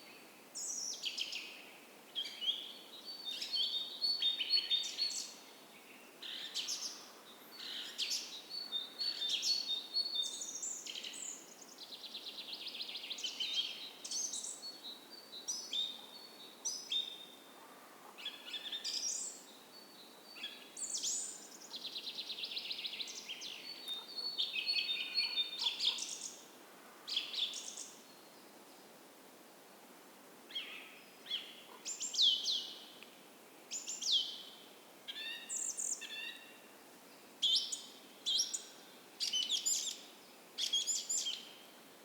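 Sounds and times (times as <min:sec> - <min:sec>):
songbirds singing: 0:18.2 - 0:26.5, 0:30.5 - 0:33.1, 0:37.2 - 0:41.8.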